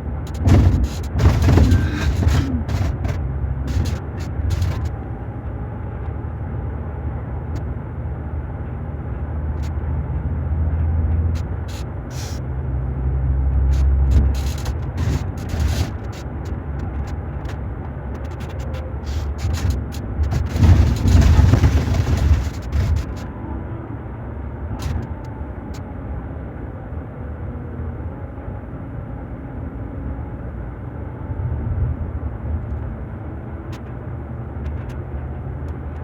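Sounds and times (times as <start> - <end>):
diesel engine droning: 0.0 - 35.6
sharp clicks and knocks: 0.3 - 4.9, 13.7 - 16.2, 18.2 - 23.2.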